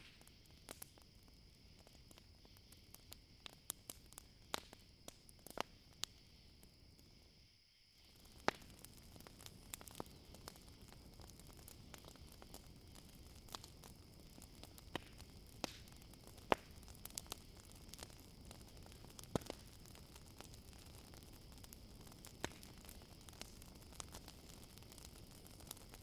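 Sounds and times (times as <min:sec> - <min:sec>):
campfire crackling and popping: 0:00.0 - 0:07.4, 0:08.0 - 0:26.0
crickets chirring: 0:00.1 - 0:26.0.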